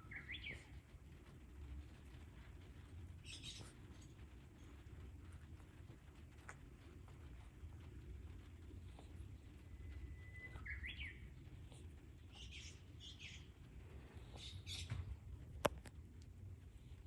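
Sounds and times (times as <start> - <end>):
bird whistling and chirping: 0.0 - 0.7, 3.2 - 3.7, 9.8 - 11.2, 12.3 - 13.5, 14.3 - 14.9.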